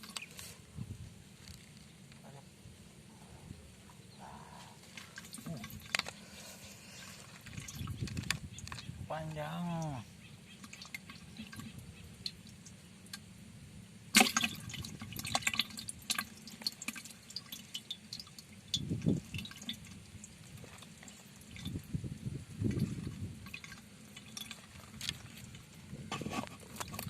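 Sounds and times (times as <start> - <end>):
water splashing and dripping: 4.8 - 6.2, 7.3 - 8.9, 9.7 - 13.3, 14.1 - 21.9, 22.5 - 25.9.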